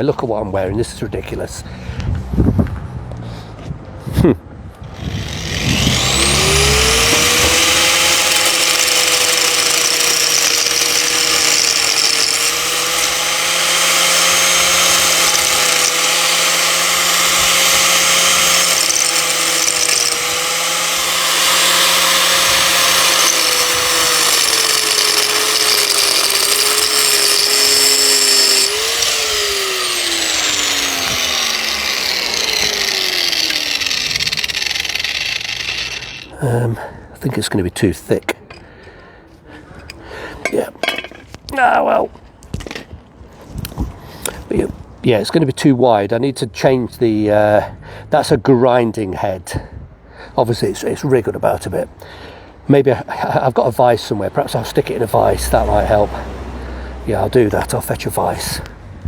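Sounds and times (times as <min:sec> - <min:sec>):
motor winding down whine: 0:04.9 - 0:36.4
angle grinder cutting: 0:04.9 - 0:36.6.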